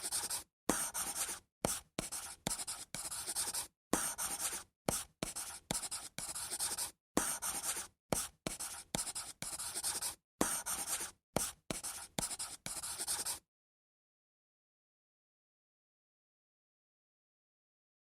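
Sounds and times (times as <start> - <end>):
pen scratching on paper: 0.0 - 13.4.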